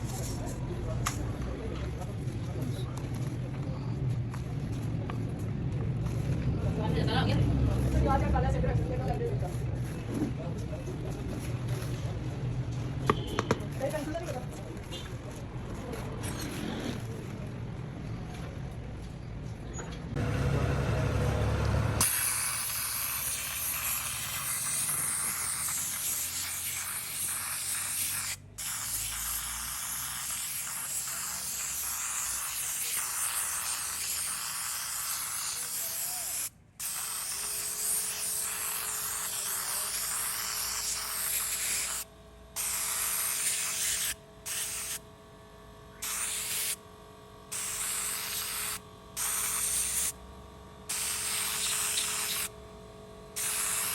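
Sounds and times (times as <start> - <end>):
low rumbling and handling noise: 0.0 - 22.1, 37.5 - 53.6
aerosol can spraying: 22.0 - 45.0, 45.9 - 46.8, 47.5 - 50.2, 50.9 - 52.5, 53.3 - 53.9.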